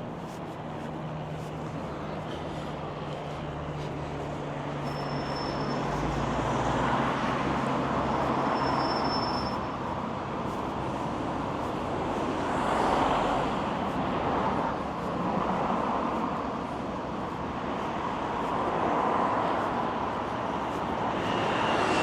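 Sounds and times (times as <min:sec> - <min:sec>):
cars passing: 0:00.0 - 0:22.0.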